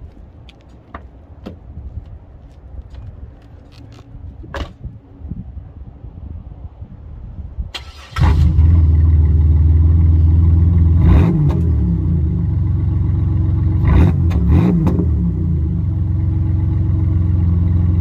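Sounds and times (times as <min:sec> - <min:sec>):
car engine starting and idling: 0:07.7 - 0:18.0.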